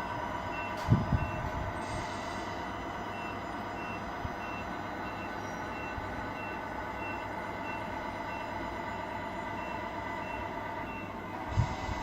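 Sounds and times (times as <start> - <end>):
diesel engine hum: 0.0 - 12.0
reversing beep: 0.5 - 1.5, 3.1 - 11.2.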